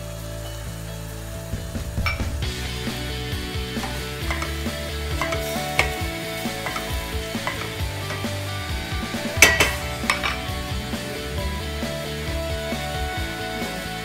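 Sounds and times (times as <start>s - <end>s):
wooden spoon scraping and knocking: 3.7s - 10.6s.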